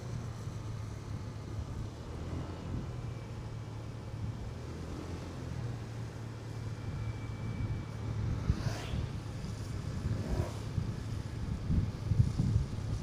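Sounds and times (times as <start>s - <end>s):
motorcycle engine humming: 0.0s - 13.0s
rising sweep: 7.8s - 10.9s.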